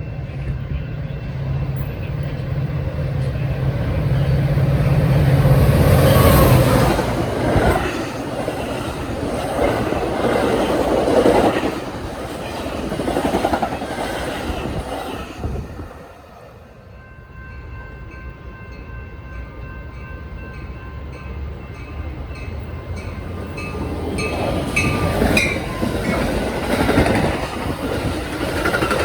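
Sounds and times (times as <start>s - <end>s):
train cars rolling past: 0.0s - 29.0s.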